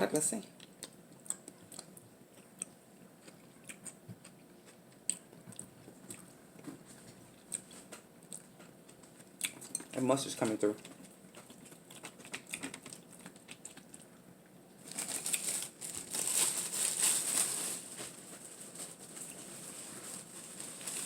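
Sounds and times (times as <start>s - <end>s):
plastic bag crinkling: 14.8s - 21.0s.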